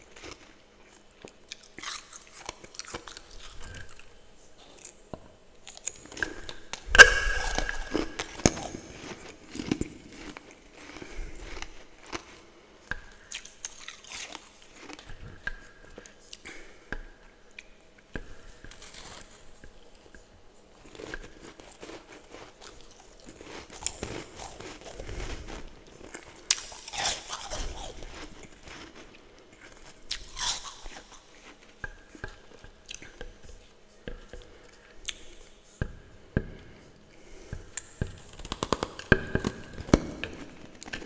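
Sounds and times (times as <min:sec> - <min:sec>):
person chewing crunchy ice: 0:07.0 - 0:12.4.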